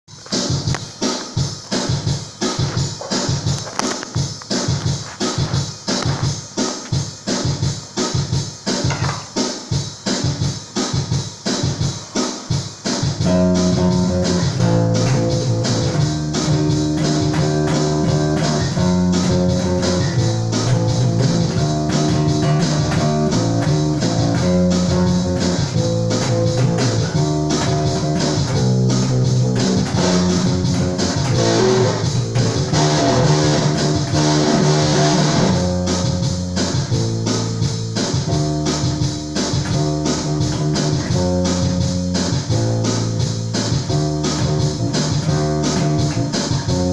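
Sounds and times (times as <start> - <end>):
held accompaniment chords: 12.9 - 46.9
plucked bass guitar: 13.2 - 46.9.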